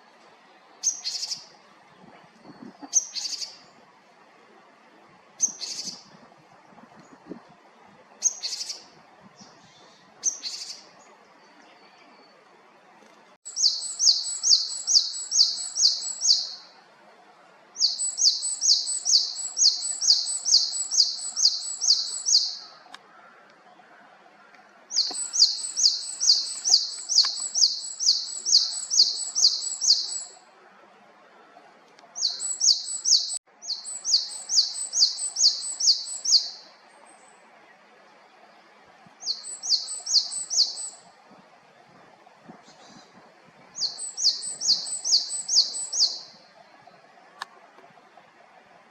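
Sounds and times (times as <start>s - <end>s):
bird calling: 24.4s - 30.4s, 43.8s - 46.3s.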